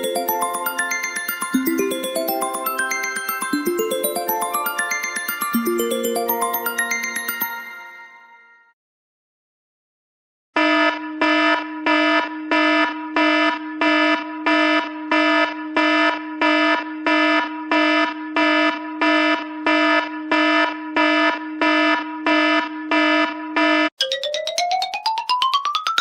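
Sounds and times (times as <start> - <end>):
pulsing electronic ringtone: 0.0 - 8.7.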